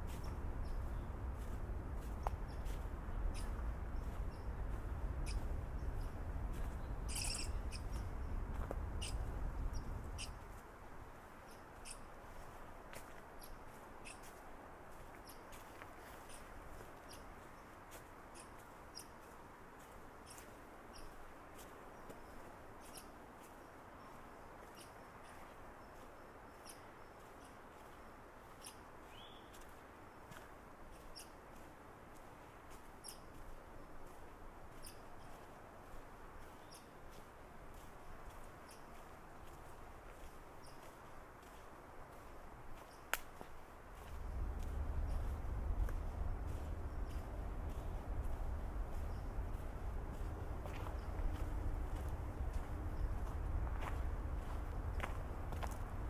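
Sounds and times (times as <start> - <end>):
small birds chirping: 0.0 - 10.5, 11.5 - 12.5, 13.4 - 14.4, 22.0 - 23.2, 24.0 - 29.8, 33.0 - 33.4, 34.7 - 35.5, 36.4 - 37.0, 37.7 - 39.6, 40.6 - 41.6, 42.8 - 56.0
low steady rush: 0.0 - 11.2, 41.8 - 56.0
footsteps crunching on leaves: 39.4 - 55.8
low rumble: 44.1 - 56.0.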